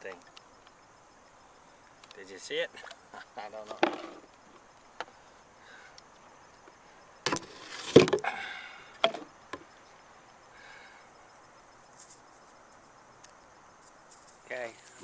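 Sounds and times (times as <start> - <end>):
scraping clatter: 3.6 - 4.3
hollow knocks on kayak: 3.7 - 4.2, 7.3 - 8.3, 9.0 - 9.6.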